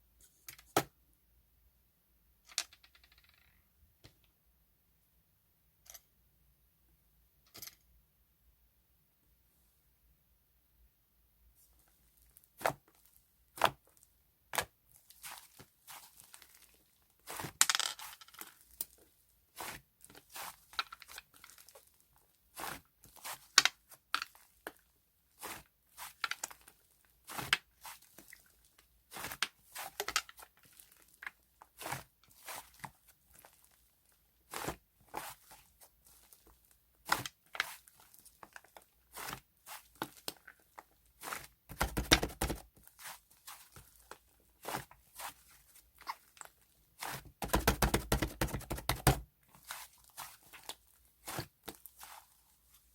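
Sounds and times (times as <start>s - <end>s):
rustling and crunching: 14.9s - 52.9s
taps on kitchen items: 47.4s - 49.2s.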